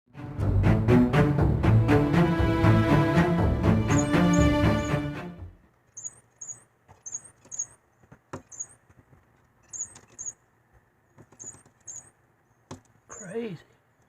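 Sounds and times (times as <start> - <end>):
high-pitched bird call notes: 3.7 - 5.2, 6.0 - 7.8
sharp taps on window: 11.1 - 13.0.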